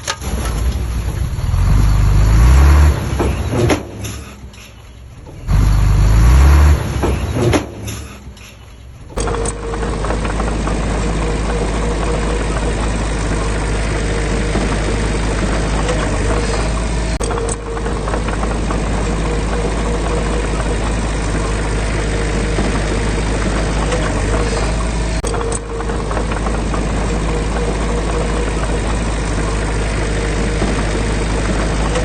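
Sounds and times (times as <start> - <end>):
diesel engine revving: 0.0 - 32.0
faint whine: 6.8 - 32.0.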